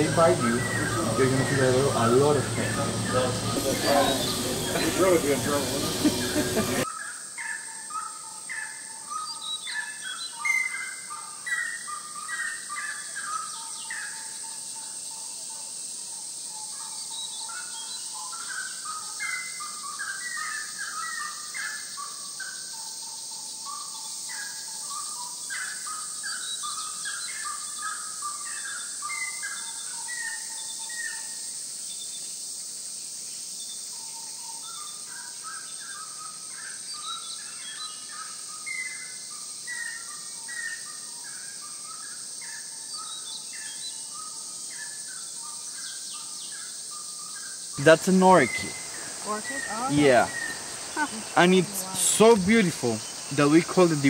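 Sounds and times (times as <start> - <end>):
steady high hiss: 0.0 - 6.9, 41.0 - 54.0
birds calling: 0.0 - 7.1, 47.8 - 54.0.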